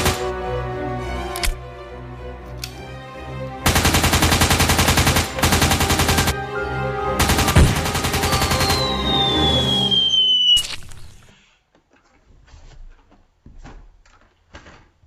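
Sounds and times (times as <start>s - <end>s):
background music: 0.0s - 10.4s
automatic gunfire bursts: 3.7s - 6.3s
descending whistle: 6.6s - 11.5s.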